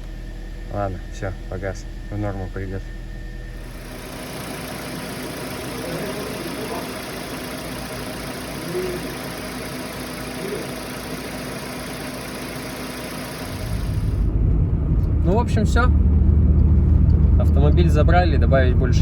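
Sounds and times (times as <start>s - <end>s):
car engine idling: 3.5s - 14.4s.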